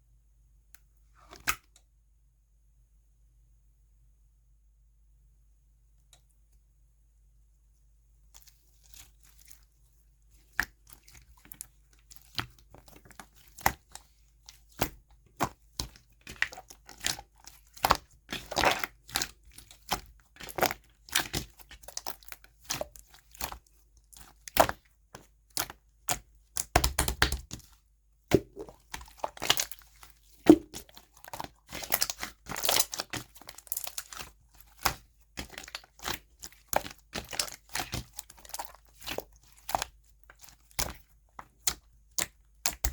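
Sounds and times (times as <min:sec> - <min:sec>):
slime crackling and popping: 0:10.6 - 0:42.9.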